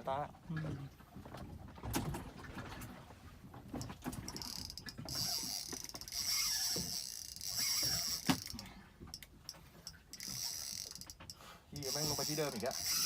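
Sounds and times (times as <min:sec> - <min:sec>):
fishing reel drag buzzing: 0:04.3 - 0:08.7, 0:09.8 - 0:13.0.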